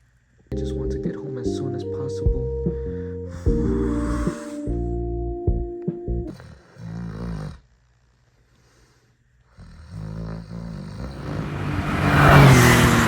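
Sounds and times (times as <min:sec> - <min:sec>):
car engine running: 0:11.0 - 0:13.0.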